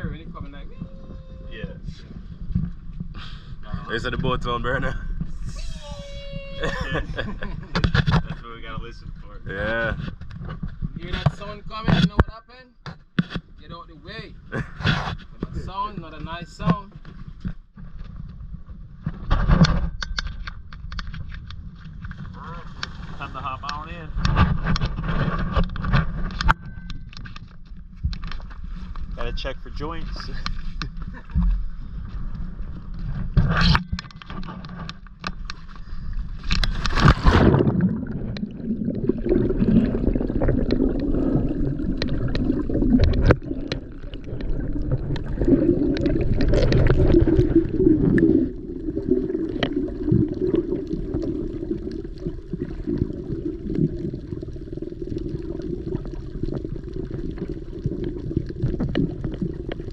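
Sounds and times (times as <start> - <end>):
sea water splashing and gurgling: 30.4 - 59.9
loud splash: 36.9 - 51.5.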